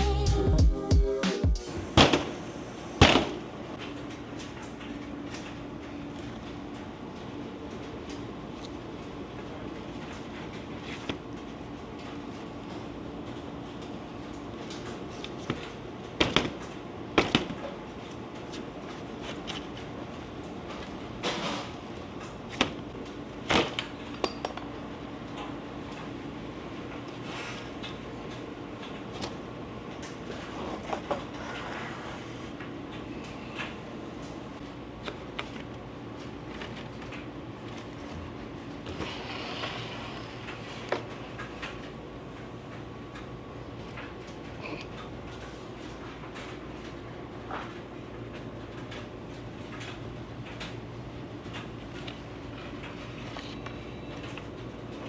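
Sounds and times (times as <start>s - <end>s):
machinery humming: 0.0s - 4.4s.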